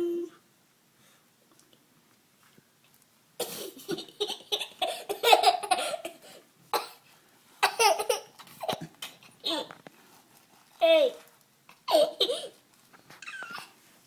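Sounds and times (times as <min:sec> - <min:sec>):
young child laughing and squealing: 0:13.2 - 0:13.7.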